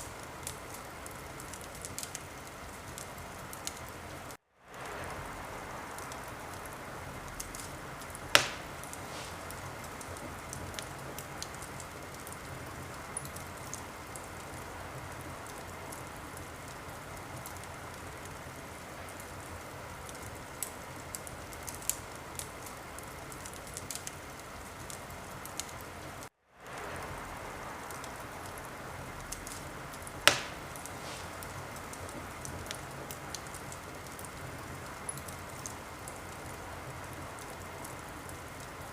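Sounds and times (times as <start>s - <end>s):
loud sharp pops of fire: 0.0s - 14.6s, 26.6s - 38.4s
wood fire crackling: 0.0s - 38.9s.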